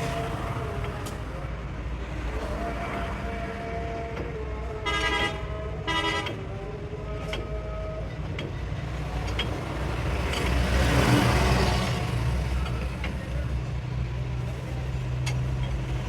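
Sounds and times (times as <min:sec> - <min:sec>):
engine and traffic rumble: 0:00.0 - 0:16.0
vehicle horn toots: 0:04.8 - 0:06.4.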